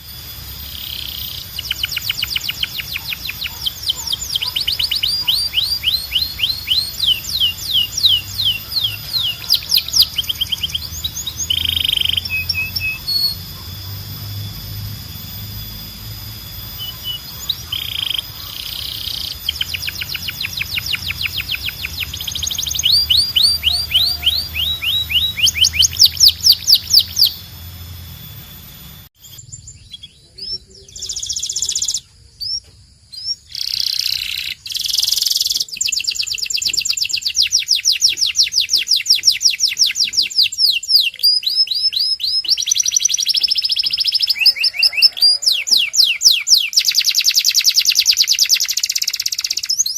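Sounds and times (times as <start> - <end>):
low hum: 0.0 - 31.1
canary singing trills: 0.0 - 49.9.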